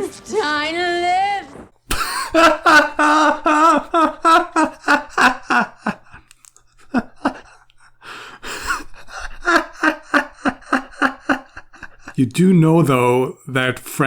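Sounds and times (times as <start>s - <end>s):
person laughing hard: 1.9s - 12.2s.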